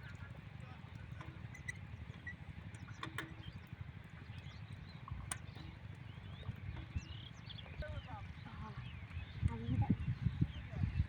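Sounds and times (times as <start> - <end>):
diesel engine chugging: 0.0 - 11.0.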